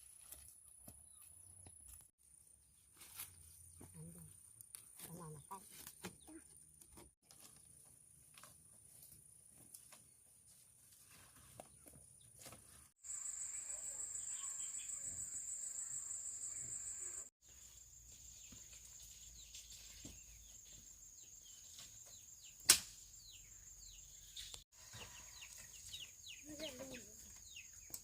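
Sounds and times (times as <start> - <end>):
insects droning: 13.0 - 19.1
sharp loud snap: 22.6 - 23.0.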